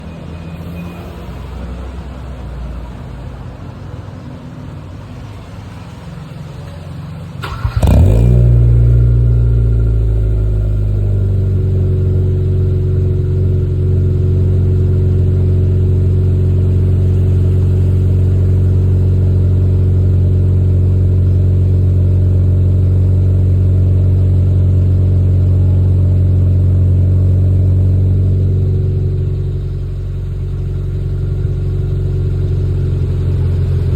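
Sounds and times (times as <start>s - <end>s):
car engine starting and idling: 6.2s - 33.9s
car engine cranking: 7.4s - 11.8s
low rumble: 8.4s - 33.9s.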